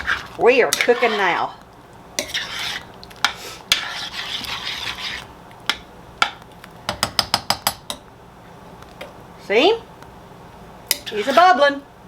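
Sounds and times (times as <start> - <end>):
spoon scraping pot: 0.0 - 1.6, 2.2 - 6.4, 10.9 - 11.6
spoon knocking pot: 5.7 - 8.0.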